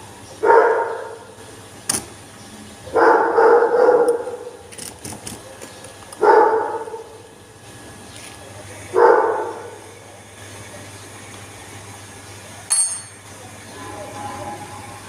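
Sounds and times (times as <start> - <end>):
dog barking: 0.4 - 1.3, 2.9 - 4.6, 6.2 - 7.2, 8.9 - 9.8.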